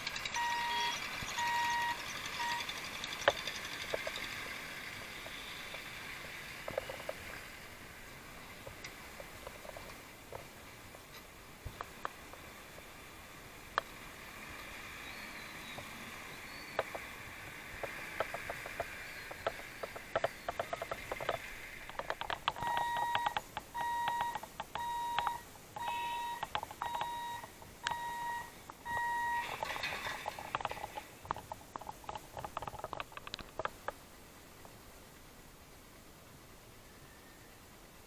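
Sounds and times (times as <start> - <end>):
sharp clicks and clatter: 0.0 - 5.9, 17.7 - 25.4, 26.4 - 28.0, 28.7 - 34.0
background hiss: 0.0 - 38.0
electronic warning beeps: 0.3 - 3.3, 22.5 - 29.8.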